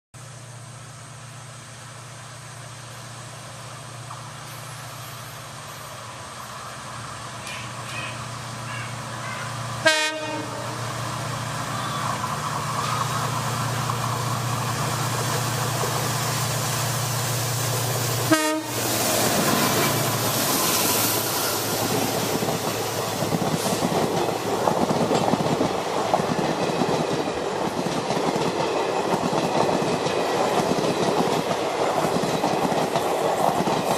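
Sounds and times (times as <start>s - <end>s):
train horn: 7.5s - 10.9s, 18.2s - 18.9s
train wheels clattering over rail joints: 21.8s - 33.9s.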